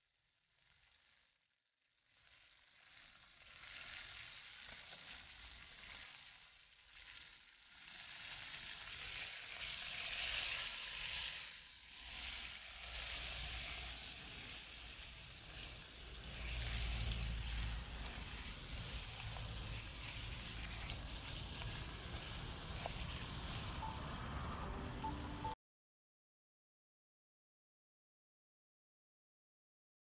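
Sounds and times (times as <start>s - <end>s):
chicken sizzling in a pot: 0.0s - 25.5s
chopsticks stirring: 2.4s - 24.2s.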